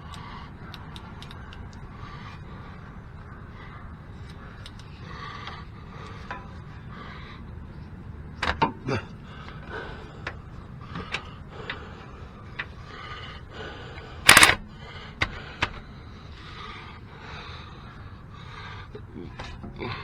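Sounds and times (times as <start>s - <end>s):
hand tools clanking on metal: 14.3s - 14.6s
sharp metal rattle: 14.3s - 14.6s.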